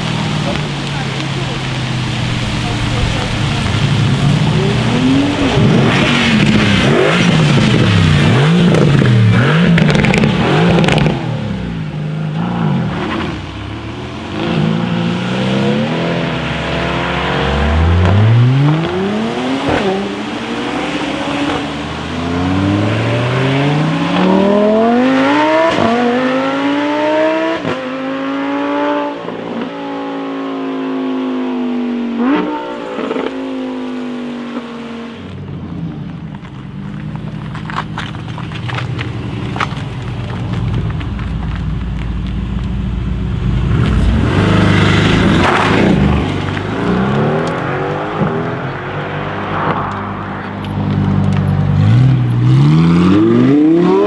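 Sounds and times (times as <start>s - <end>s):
car engine revving and accelerating: 0.0s - 35.4s, 43.0s - 54.0s.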